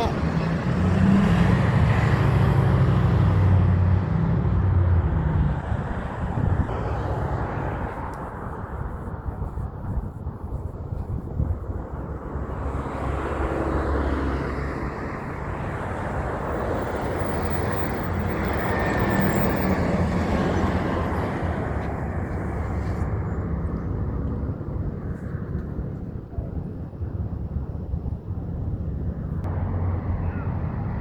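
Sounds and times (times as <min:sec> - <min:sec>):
heavy trucks driving past: 0:00.0 - 0:08.6, 0:11.9 - 0:25.5, 0:28.8 - 0:31.0.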